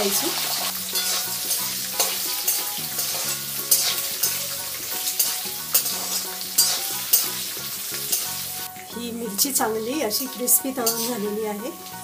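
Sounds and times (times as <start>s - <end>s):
food sizzling in hot oil: 0.0s - 12.0s
metal spoon scraping pan: 0.4s - 8.7s, 10.8s - 11.4s.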